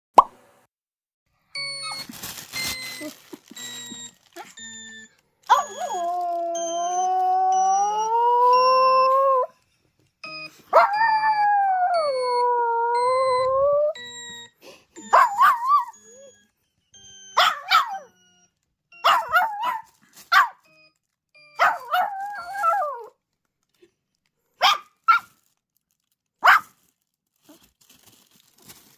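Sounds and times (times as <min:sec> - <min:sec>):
puppy howling and yelping: 0:05.5 - 0:09.6, 0:10.7 - 0:14.0, 0:15.0 - 0:16.3, 0:17.3 - 0:18.1, 0:19.0 - 0:20.5, 0:21.6 - 0:23.2.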